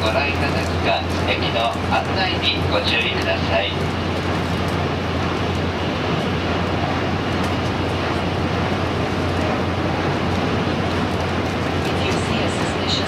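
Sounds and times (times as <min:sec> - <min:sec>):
train running noise inside car: 0:00.0 - 0:13.0.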